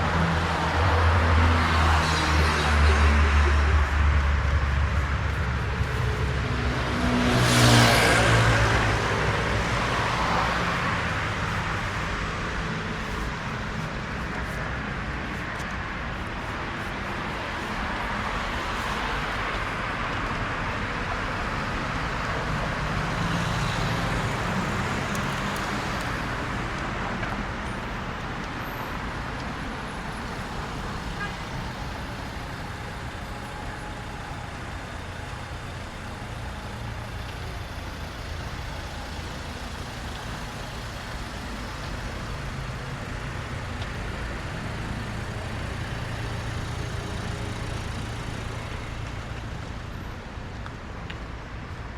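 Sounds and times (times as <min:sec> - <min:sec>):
vehicle passing: 0:00.0 - 0:20.0
road traffic hum: 0:00.0 - 0:51.9.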